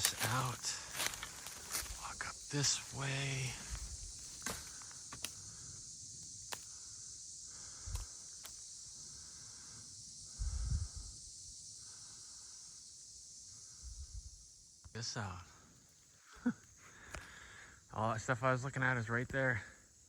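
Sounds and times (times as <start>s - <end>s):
footsteps through brush: 0.0s - 5.4s
crickets chirping: 0.0s - 20.0s.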